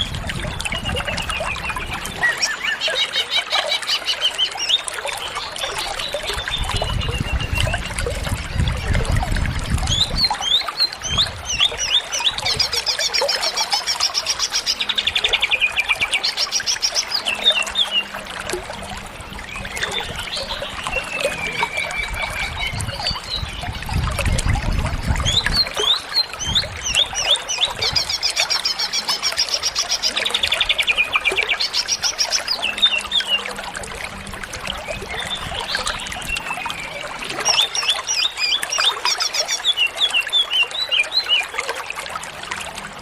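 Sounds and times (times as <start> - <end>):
bird singing: 0.0 - 7.9, 25.2 - 33.6, 34.7 - 41.5.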